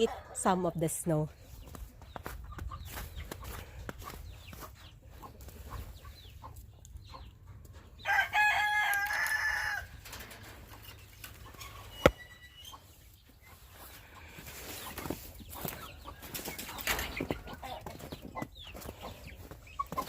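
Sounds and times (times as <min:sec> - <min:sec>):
rooster crowing: 0:08.0 - 0:10.0.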